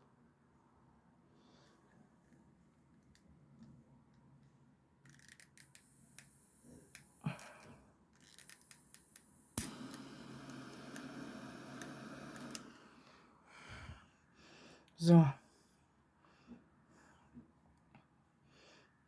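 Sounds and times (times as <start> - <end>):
lighter clicking: 5.3 - 7.5, 8.2 - 12.8
lighter flame rushing hiss: 5.6 - 13.4.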